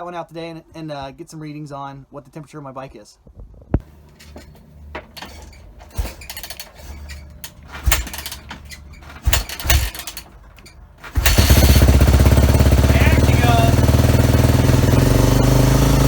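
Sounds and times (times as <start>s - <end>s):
knocks and clatters of handling: 3.3s - 11.3s
motorcycle engine running: 9.1s - 10.2s, 11.1s - 16.0s.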